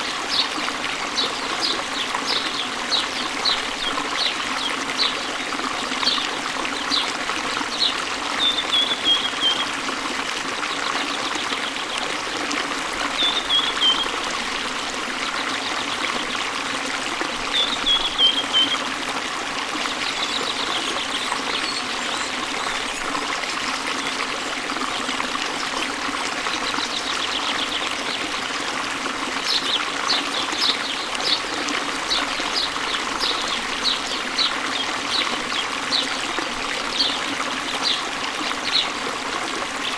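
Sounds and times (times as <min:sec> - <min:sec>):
stream flowing: 0:00.0 - 0:39.9
songbird calling: 0:08.4 - 0:09.7, 0:13.2 - 0:14.1, 0:17.6 - 0:18.8.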